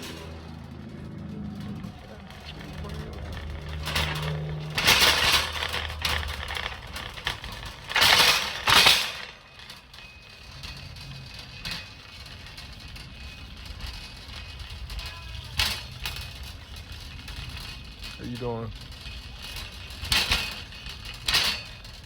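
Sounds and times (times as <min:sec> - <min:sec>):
car engine humming: 0:00.0 - 0:09.6
handling noise: 0:00.0 - 0:12.0.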